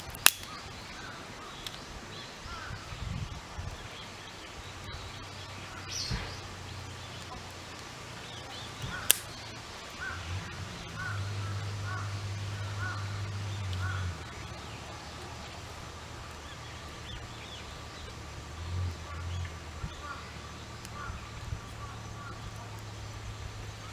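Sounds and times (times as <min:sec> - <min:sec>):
sharp click: 0:00.0 - 0:00.6, 0:08.8 - 0:09.4
crow cawing: 0:02.4 - 0:02.8, 0:10.0 - 0:15.2, 0:19.0 - 0:22.7.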